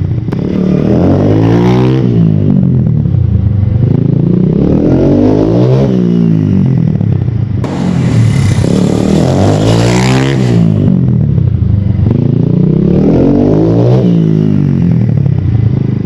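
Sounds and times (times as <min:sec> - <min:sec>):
dirt bike engine revving: 0:07.6 - 0:11.1.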